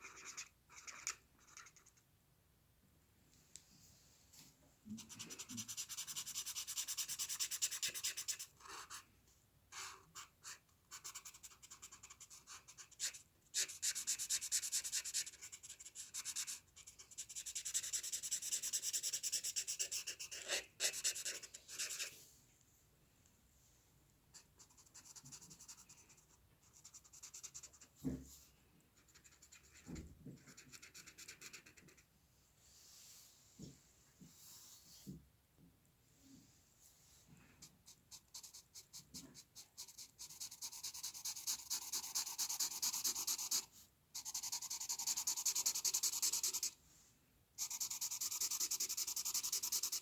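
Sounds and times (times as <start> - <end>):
drawing tool scratching paper: 5.0 - 9.0, 9.8 - 22.1, 38.1 - 46.8, 47.6 - 50.0.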